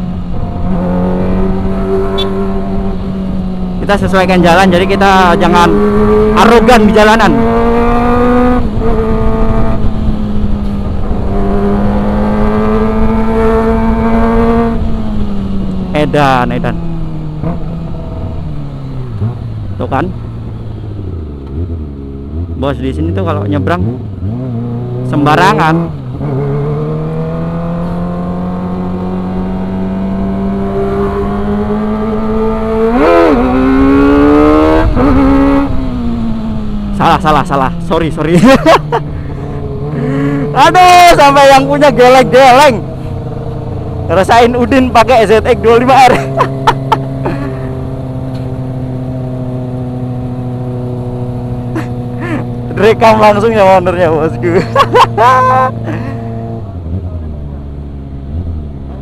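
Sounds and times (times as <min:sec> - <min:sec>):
motorcycle engine revving: 0:00.0 - 0:59.0
wind and road noise: 0:00.0 - 0:59.0.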